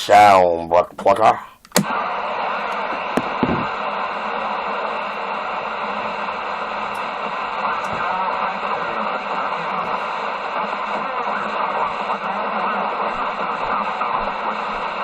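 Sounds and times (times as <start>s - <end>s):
radio static hiss: 0.0s - 15.0s
short radio clicks: 1.0s - 2.0s.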